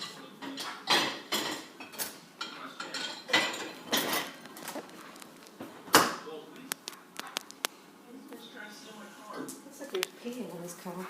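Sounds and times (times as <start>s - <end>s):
dishware clattering: 0.0s - 4.7s.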